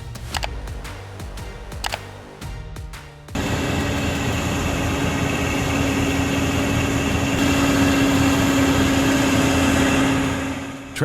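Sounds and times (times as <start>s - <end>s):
heavy truck engine droning: 3.4s - 11.0s.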